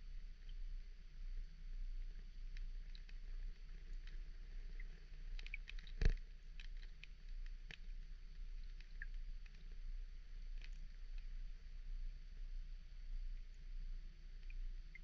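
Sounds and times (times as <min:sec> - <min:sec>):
steady low hum: 0:00.0 - 0:15.0
light ticks and clicks: 0:01.4 - 0:11.7.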